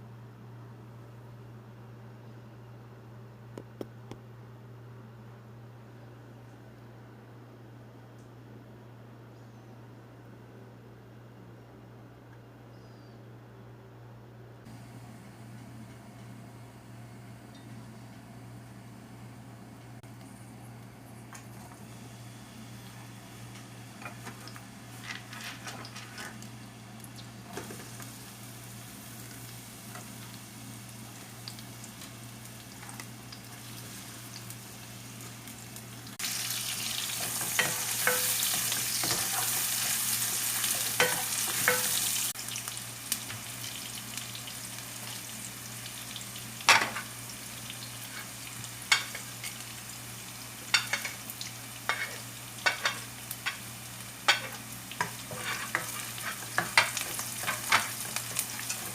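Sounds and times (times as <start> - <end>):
food frying in oil: 20.3 - 58.9
utensil scraping a pan: 55.3 - 58.0.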